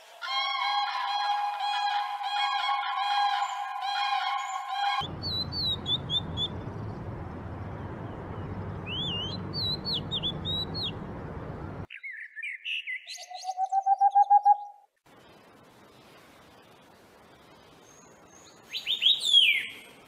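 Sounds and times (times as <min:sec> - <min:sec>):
low background hum: 0:05.0 - 0:11.9
bird singing whistled phrases: 0:08.9 - 0:10.9, 0:11.9 - 0:14.8, 0:18.7 - 0:19.8.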